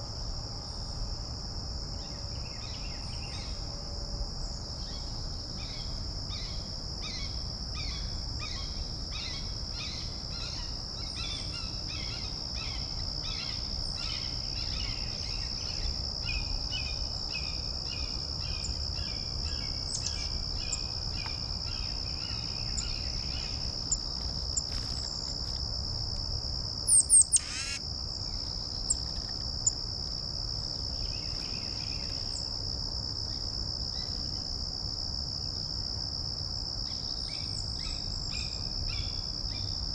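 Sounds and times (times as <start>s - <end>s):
high insect trill: 0.0s - 39.9s
bird falling call: 27.4s - 27.8s.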